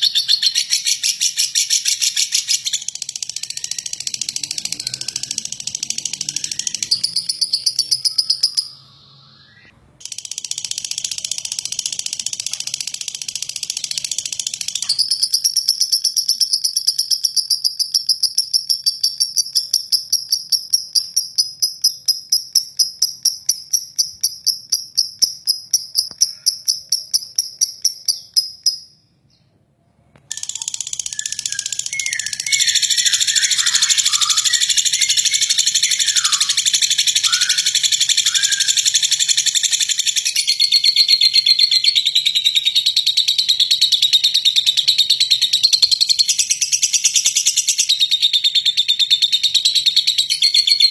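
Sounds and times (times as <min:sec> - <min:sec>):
bird chirping: 0:00.0 - 0:50.9
lovebird rattling trill: 0:00.1 - 0:08.7, 0:10.0 - 0:28.9, 0:30.3 - 0:48.0.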